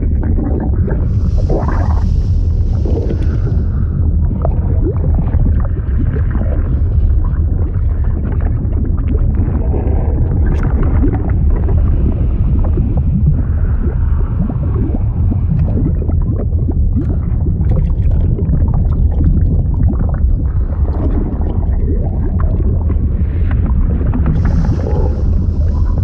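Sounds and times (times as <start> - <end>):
liquid churning and bubbling: 0.0 - 26.0.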